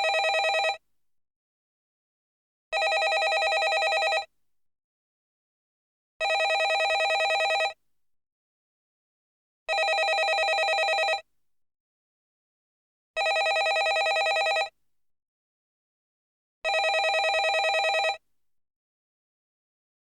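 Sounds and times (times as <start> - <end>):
landline telephone ringing: 0.0 - 0.8, 2.8 - 4.3, 6.2 - 7.8, 9.7 - 11.2, 13.2 - 14.7, 16.7 - 18.2.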